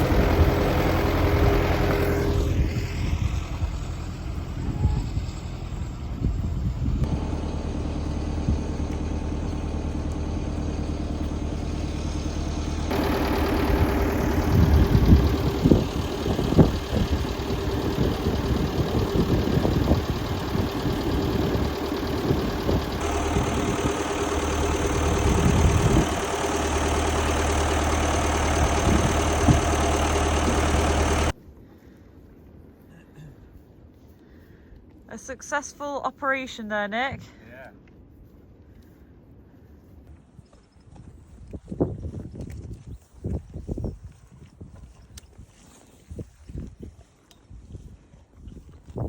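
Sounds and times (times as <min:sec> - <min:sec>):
tractor engine running: 0:00.0 - 0:31.4.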